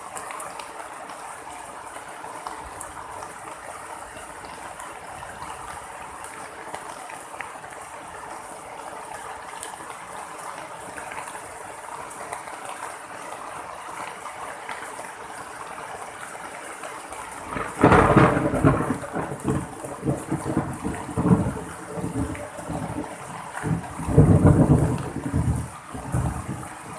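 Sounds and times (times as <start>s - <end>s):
steady rain falling: 0.0s - 26.9s
thunder cracking and rumbling: 17.5s - 26.9s.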